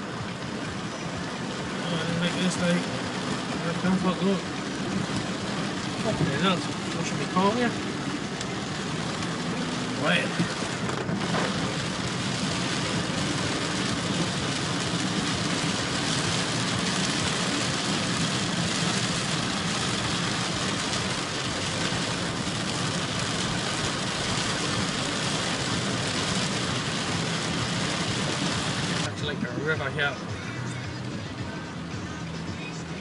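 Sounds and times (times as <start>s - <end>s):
car engine running low: 0.0s - 29.6s
rain on car: 0.0s - 33.0s
tyres on wet road: 0.0s - 33.0s.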